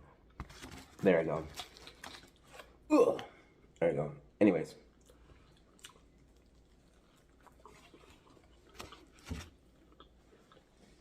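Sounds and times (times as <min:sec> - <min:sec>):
faint biting and chewing: 0:04.9 - 0:11.0.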